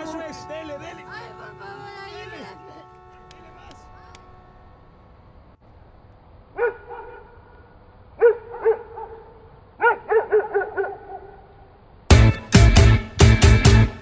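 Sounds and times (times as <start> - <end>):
dog barking: 6.6 - 7.4, 8.2 - 11.4
loud music with chopped beat: 12.1 - 14.0.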